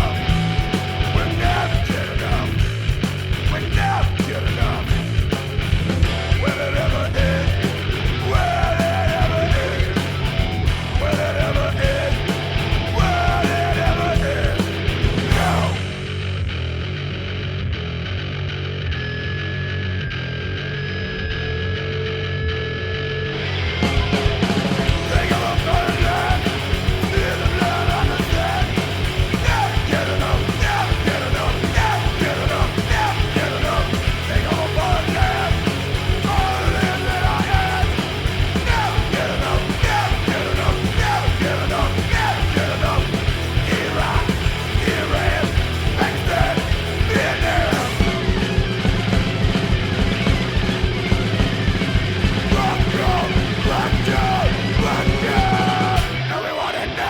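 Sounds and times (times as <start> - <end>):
shouted vocals: 0.0 - 2.7, 3.5 - 5.0, 6.2 - 16.0, 25.0 - 48.4, 52.4 - 57.0
punk rock band playing: 0.0 - 16.9, 23.3 - 57.0.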